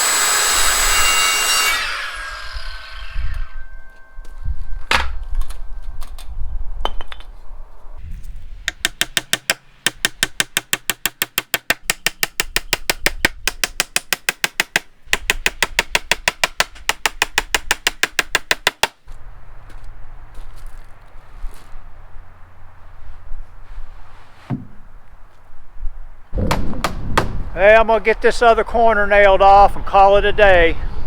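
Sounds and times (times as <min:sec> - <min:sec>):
sharp knocks: 0:08.6 - 0:19.0, 0:26.4 - 0:27.5.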